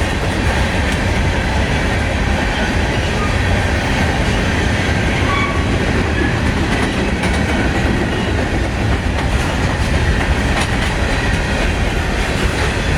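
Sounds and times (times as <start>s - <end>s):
freight train rumbling past: 0.0s - 12.9s
wheels clicking over rail joints: 6.1s - 12.9s.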